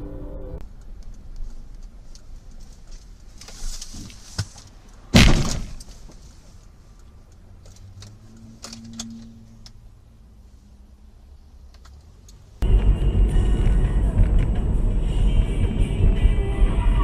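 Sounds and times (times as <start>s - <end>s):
vehicle crash: 3.8s - 6.2s.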